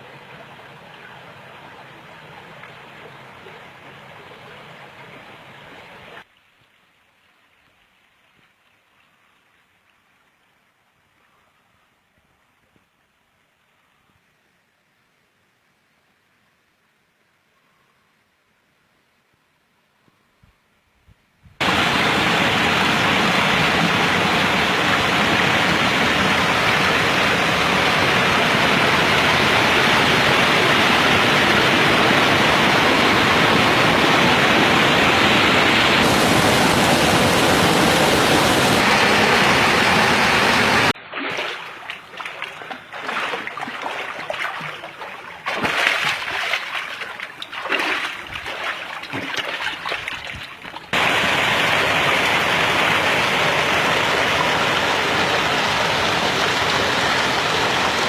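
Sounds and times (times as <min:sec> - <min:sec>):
rushing stream roar: 0:00.0 - 0:06.3, 0:21.6 - 0:58.0
water splashing and gurgling: 0:21.6 - 0:58.0.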